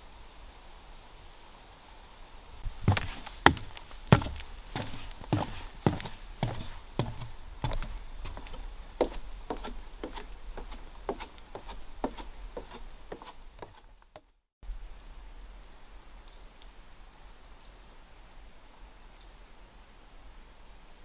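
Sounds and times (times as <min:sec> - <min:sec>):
faint background noise: 0:00.0 - 0:21.0
footsteps on a trail: 0:02.6 - 0:14.3.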